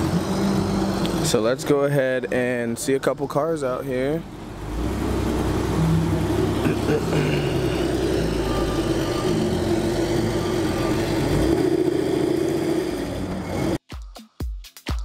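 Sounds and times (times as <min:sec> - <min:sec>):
car engine running at low revs: 0:00.0 - 0:13.8.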